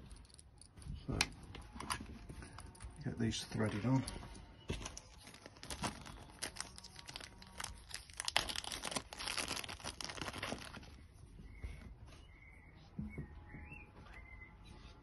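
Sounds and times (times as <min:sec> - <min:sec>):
hands handling small plastic parts: 0:00.0 - 0:11.0.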